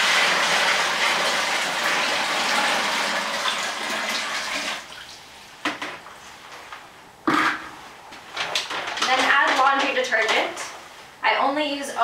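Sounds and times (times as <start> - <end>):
water pouring into bucket: 0.0 - 5.2.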